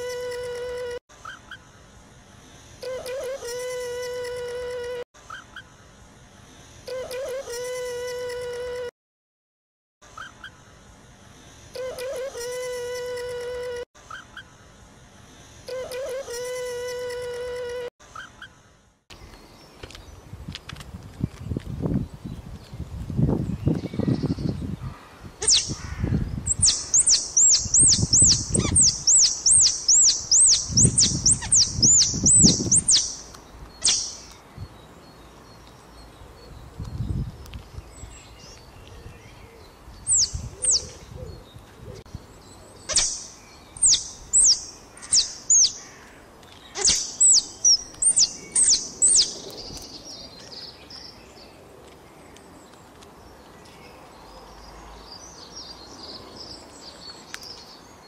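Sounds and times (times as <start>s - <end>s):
songbird singing high notes: 25.4s - 34.4s, 40.0s - 41.0s, 42.1s - 45.9s, 46.7s - 49.5s.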